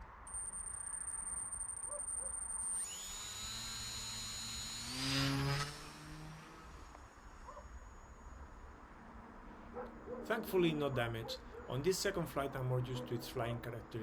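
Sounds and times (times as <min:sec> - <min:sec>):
high-pitched electric motor whine: 0:00.3 - 0:09.2.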